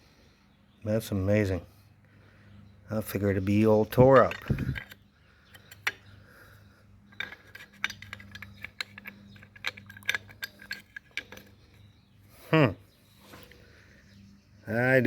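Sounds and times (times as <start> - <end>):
metal parts clinking: 3.6 - 6.1, 7.0 - 11.9.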